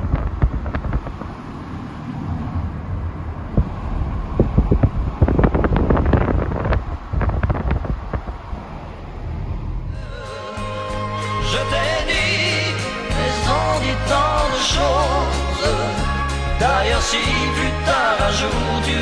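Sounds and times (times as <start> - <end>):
short knocks and crackles: 0.0 - 1.4
wind buffeting microphone: 0.0 - 10.1
steady low rumble: 0.0 - 19.0.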